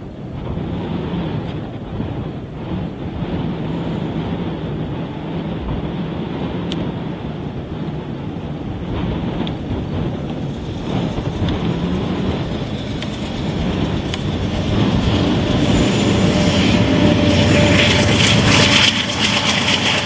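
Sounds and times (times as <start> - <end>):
freight train rail rumble: 0.0 - 20.0.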